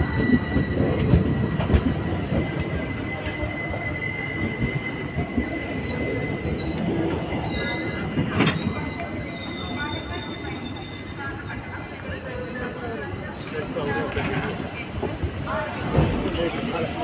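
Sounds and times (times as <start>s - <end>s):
high wheel squeal: 0.0s - 11.5s
train wheels rumbling on rails: 0.0s - 17.0s.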